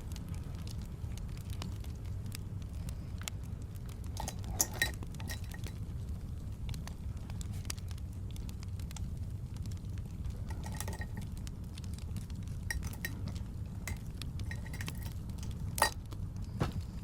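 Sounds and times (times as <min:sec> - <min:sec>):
fire crackling: 0:00.0 - 0:17.0
fire low rumble: 0:00.0 - 0:17.0
light ringing clinks: 0:04.0 - 0:05.8, 0:10.4 - 0:11.4, 0:12.6 - 0:16.0.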